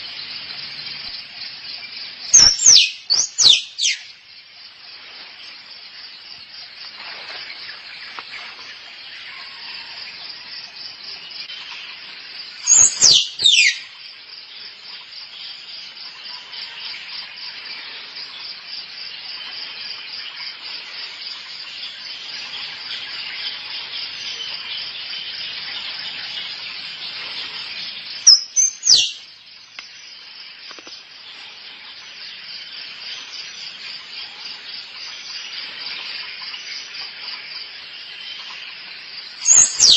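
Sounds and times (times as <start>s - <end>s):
high insect buzz: 2.3s - 4.0s, 12.6s - 13.9s, 26.9s - 31.0s, 39.4s - 39.9s
squirrel whistle-like calls: 2.4s - 4.0s, 12.6s - 13.9s, 28.3s - 29.2s, 39.4s - 39.9s.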